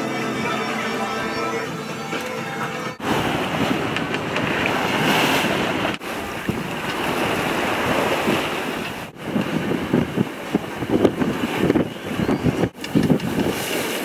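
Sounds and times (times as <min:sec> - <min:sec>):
sea water rushing past boat: 0:00.0 - 0:14.0
wind buffeting microphone: 0:03.0 - 0:14.0.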